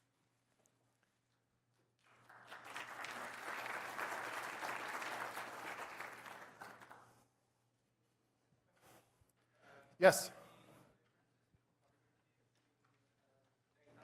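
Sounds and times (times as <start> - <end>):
audience applauding: 2.1 - 7.1.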